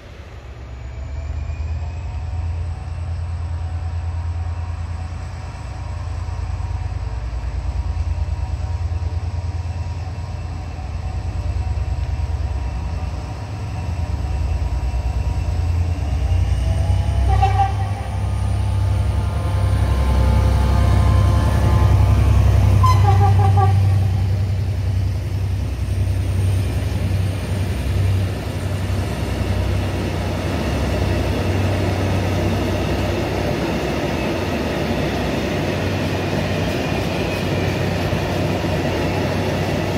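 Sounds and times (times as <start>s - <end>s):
diesel locomotive engine throbbing: 0.0s - 39.9s
horn toots: 22.8s - 24.3s.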